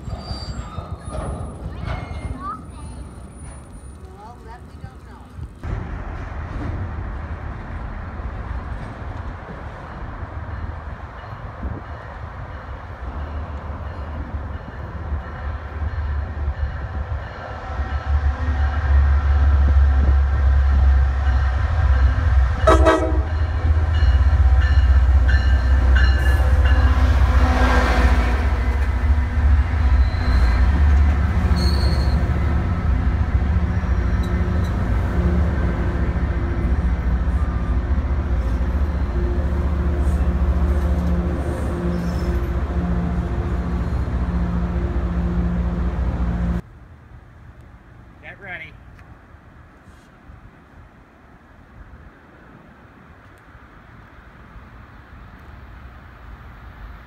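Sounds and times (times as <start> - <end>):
coaches rolling by: 0.0 - 11.4
diesel train engine rumble: 0.0 - 57.0
train horn: 22.6 - 23.7.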